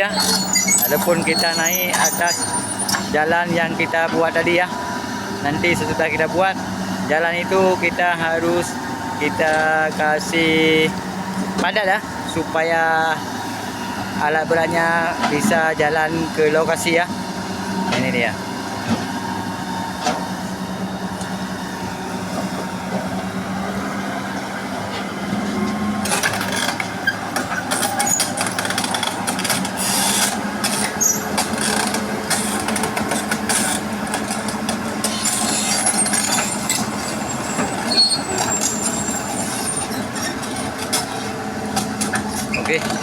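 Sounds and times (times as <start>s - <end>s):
metallic clanks and squeaks: 0.0s - 3.2s, 26.0s - 43.0s
diesel excavator running: 0.0s - 43.0s.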